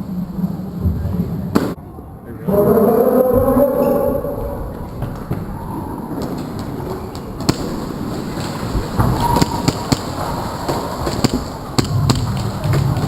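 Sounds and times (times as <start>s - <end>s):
airsoft guns firing: 7.4s - 13.0s.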